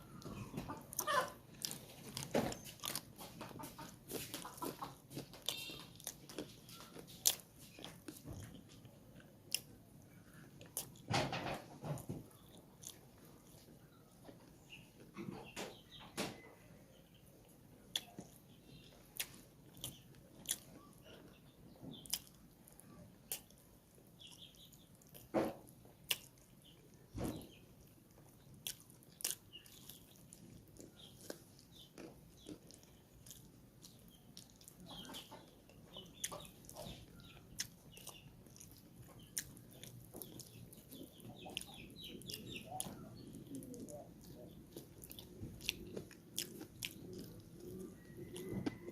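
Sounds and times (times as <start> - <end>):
person chewing food: 0.0 - 11.1, 11.8 - 15.1, 17.2 - 48.9
mouth clicks and smacks: 17.8 - 20.9, 26.0 - 27.0, 28.5 - 48.8.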